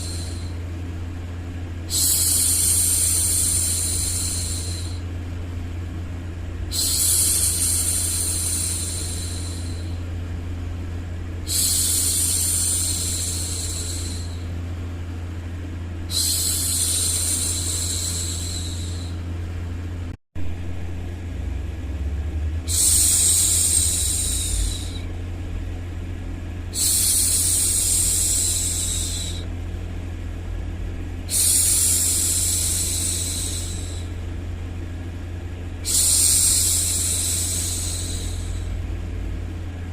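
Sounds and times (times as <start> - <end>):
steady low hum: 0.0 - 39.9
woman shushing: 6.7 - 10.0, 16.1 - 19.2, 22.7 - 25.1.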